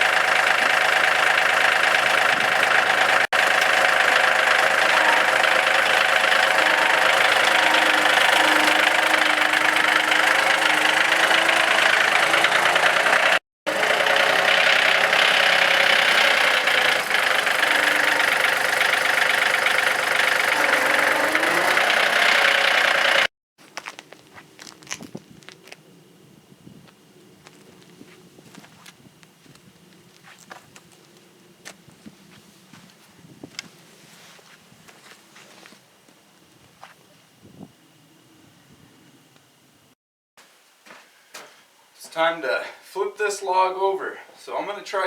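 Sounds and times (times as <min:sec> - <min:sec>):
saw blade cutting log: 0:00.0 - 0:23.3
sawmill gas engine running: 0:00.0 - 0:23.3.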